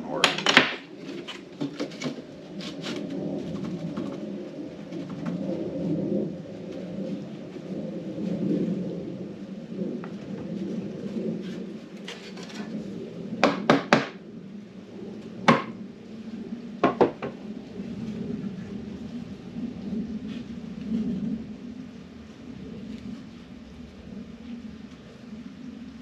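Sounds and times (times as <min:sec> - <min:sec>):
steady low hum: 0:00.0 - 0:26.0
hard objects knocking: 0:00.2 - 0:02.2, 0:16.8 - 0:17.4.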